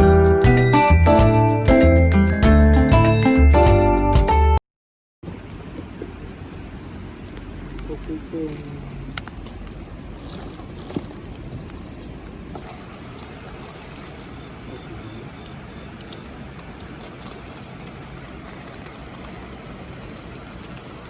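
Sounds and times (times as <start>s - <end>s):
insects trilling: 5.2s - 21.0s.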